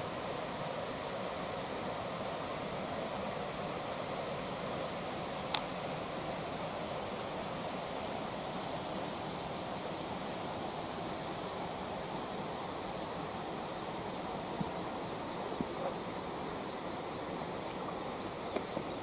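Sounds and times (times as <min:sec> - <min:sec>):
creek water rushing: 0:00.0 - 0:19.0
faint click: 0:05.5 - 0:05.7.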